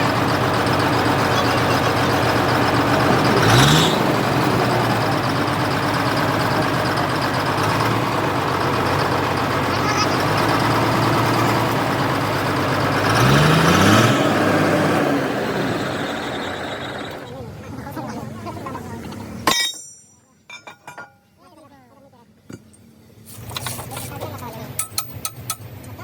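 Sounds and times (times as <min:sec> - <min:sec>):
diesel engine running and revving: 0:00.0 - 0:19.4.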